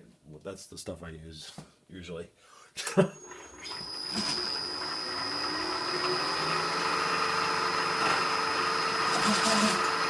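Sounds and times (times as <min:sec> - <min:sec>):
milling machine whine: 0:03.2 - 0:10.0.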